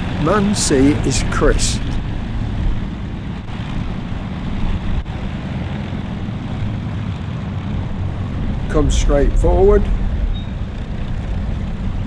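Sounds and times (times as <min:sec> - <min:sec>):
propeller aircraft engines droning: 0:00.0 - 0:11.3.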